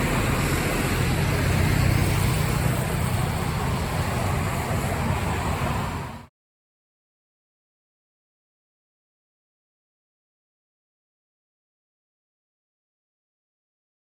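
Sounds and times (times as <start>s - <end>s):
bus engine pulling away: 0.0s - 6.3s
road noise: 0.0s - 6.3s.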